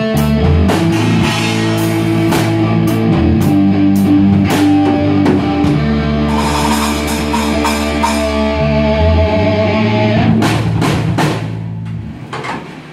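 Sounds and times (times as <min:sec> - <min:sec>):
live rock band playing: 0:00.0 - 0:12.1
strong drum hits: 0:00.7 - 0:03.0, 0:04.3 - 0:08.7, 0:10.3 - 0:11.7.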